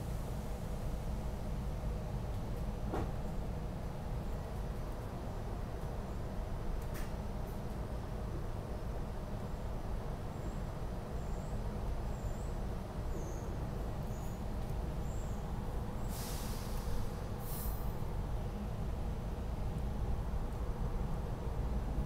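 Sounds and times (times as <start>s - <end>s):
train rumbling: 12.6s - 22.0s
air hissing: 16.0s - 17.9s.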